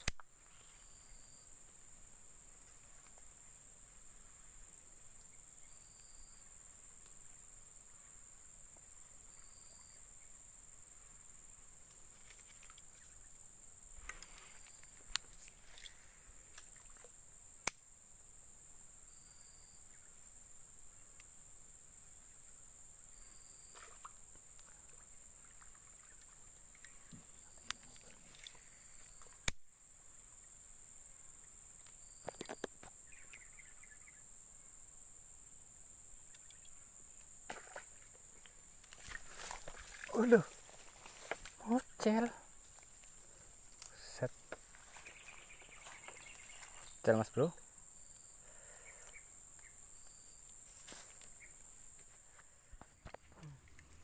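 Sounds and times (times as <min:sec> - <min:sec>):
sharp clicks: 0:00.0 - 0:00.3, 0:29.4 - 0:29.6
insects buzzing: 0:00.0 - 0:54.0.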